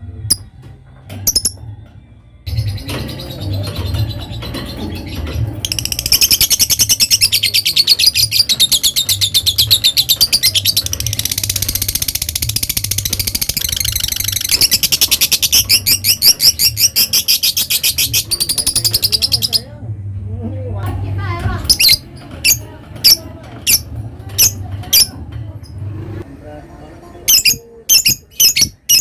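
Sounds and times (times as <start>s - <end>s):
lovebird chattering: 5.6s - 19.6s, 21.7s - 25.1s, 27.3s - 29.0s.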